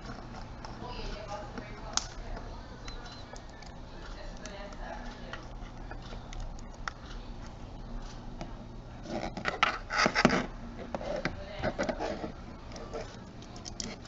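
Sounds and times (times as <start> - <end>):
plastic cover scraping: 9.0 - 13.2.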